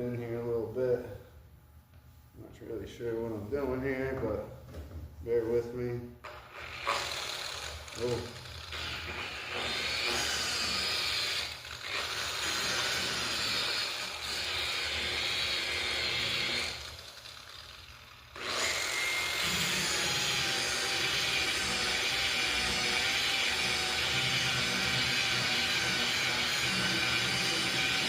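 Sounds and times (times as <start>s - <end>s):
polishing buffer motor running: 6.5s - 28.0s.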